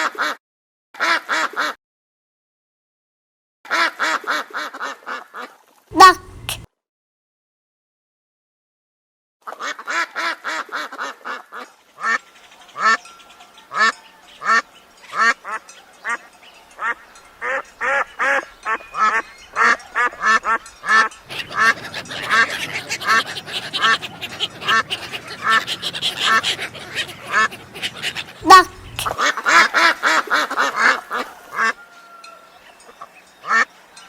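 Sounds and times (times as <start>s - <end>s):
duck quacking: 6.0s - 6.7s, 28.4s - 29.2s.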